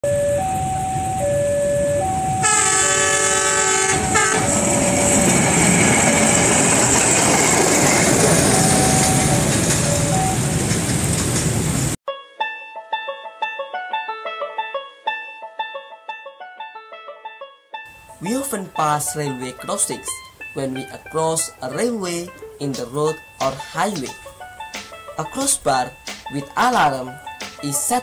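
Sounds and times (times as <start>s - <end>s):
level crossing alarm two tones: 0.0s - 6.4s, 8.3s - 10.6s
train wheels rumbling on rails: 0.4s - 12.0s
train horn blast: 2.4s - 5.0s
plucked music: 12.1s - 28.0s.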